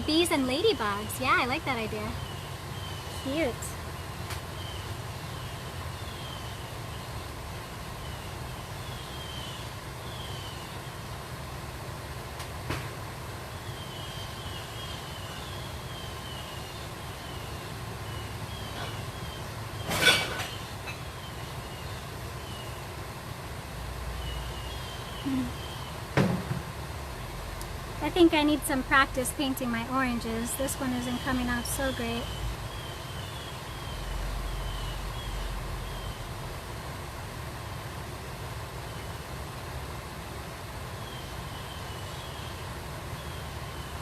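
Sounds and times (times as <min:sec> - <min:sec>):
knock: 0:26.2 - 0:26.6.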